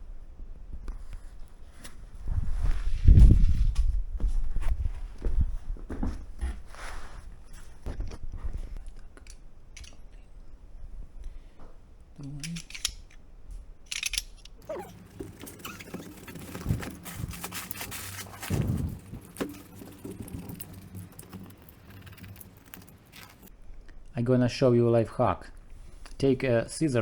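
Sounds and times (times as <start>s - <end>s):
handling clicks: 12.2s - 13.2s, 13.9s - 17.0s.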